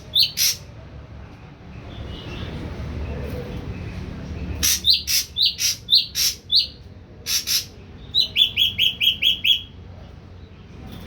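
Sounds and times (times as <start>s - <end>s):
bird singing harsh rasping notes: 0.0s - 0.7s, 4.5s - 9.8s
bird whistling: 8.2s - 9.7s.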